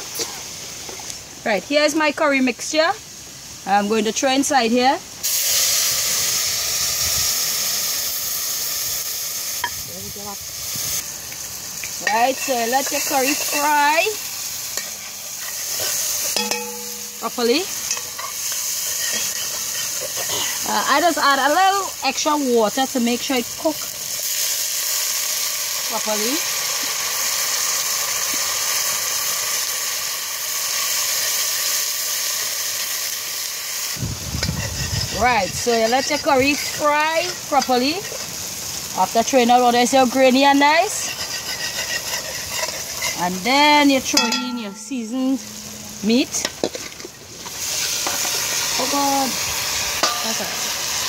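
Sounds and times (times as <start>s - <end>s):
liquid sizzling in hot oil: 0.0s - 51.0s.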